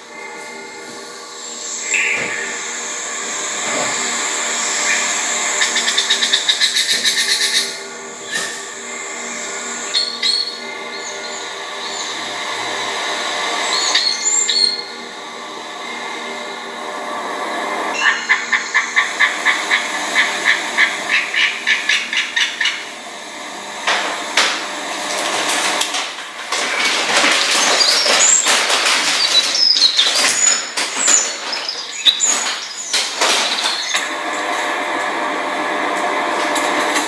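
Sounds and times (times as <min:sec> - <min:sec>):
rustling and scratching: 0:23.9 - 0:35.1.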